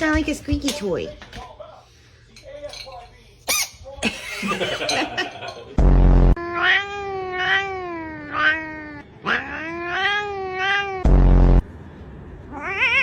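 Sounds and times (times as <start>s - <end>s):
loud low buzz: 5.8s - 6.4s, 11.0s - 11.8s
cat yowling meows: 6.4s - 11.0s, 12.5s - 13.0s.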